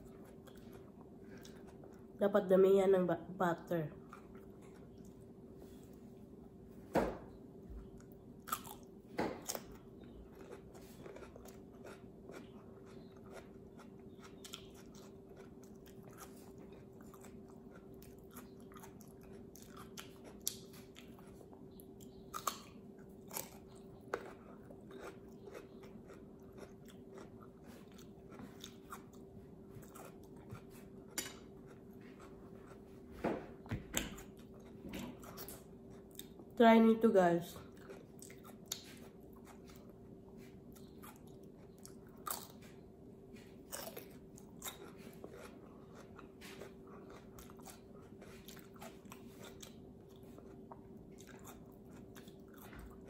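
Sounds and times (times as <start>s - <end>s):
steady low hum: 0.0s - 53.0s
crunching bites and chewing: 7.8s - 32.9s, 37.6s - 53.0s.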